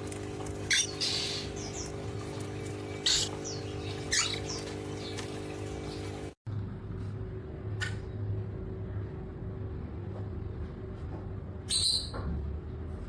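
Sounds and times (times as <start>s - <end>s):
low mechanical hum: 0.0s - 13.0s
parrot squeaky chirps: 0.7s - 1.5s, 3.0s - 3.4s, 4.0s - 4.6s.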